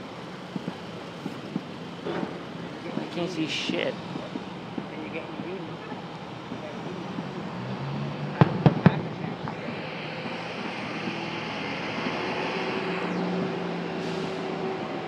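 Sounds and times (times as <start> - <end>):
sharp firework pops: 8.4 - 10.4.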